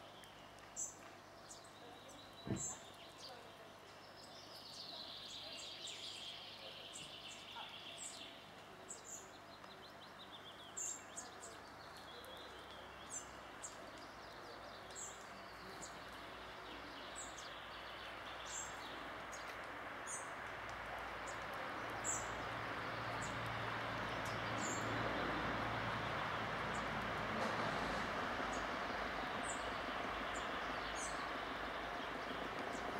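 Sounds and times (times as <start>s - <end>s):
background rush: 16.0s - 32.9s.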